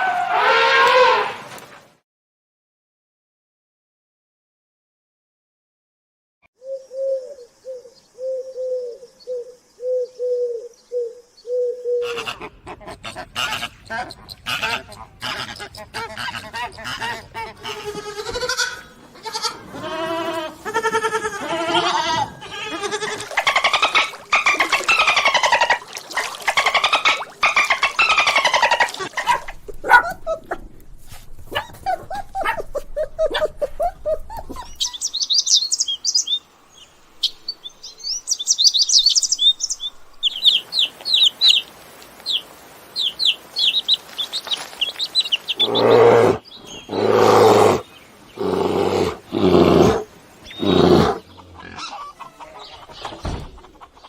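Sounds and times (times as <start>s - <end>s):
long wavering animal calls: 17.5s - 29.5s
small birds chirping in trills: 31.6s - 54.0s.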